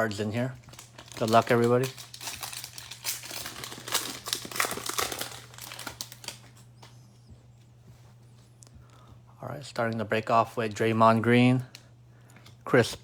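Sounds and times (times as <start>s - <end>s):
plastic wrapper crinkling: 0.4s - 6.7s.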